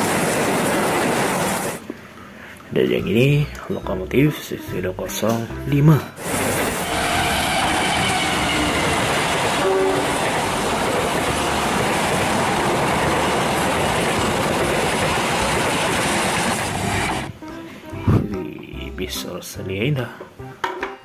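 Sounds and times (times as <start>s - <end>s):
train rumbling past on track: 0.0s - 1.9s, 6.2s - 17.4s.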